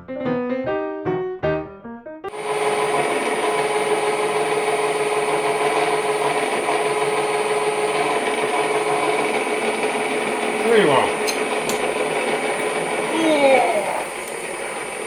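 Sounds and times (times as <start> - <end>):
piano music: 0.0 - 4.5
lathe drilling metal: 2.3 - 15.0.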